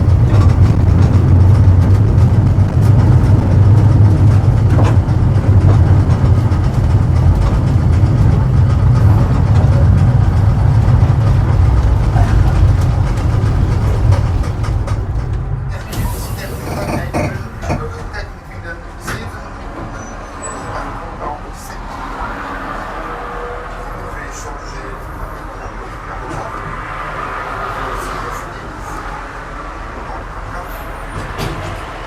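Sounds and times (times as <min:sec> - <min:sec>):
tram rumbling: 0:00.0 - 0:32.0.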